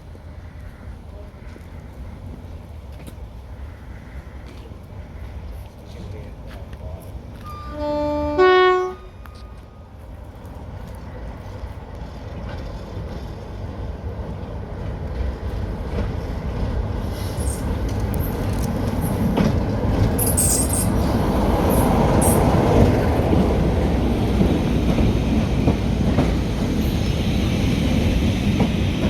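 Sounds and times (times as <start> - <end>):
diesel train passing: 0.0 - 29.0
high wheel squeals: 20.2 - 21.1.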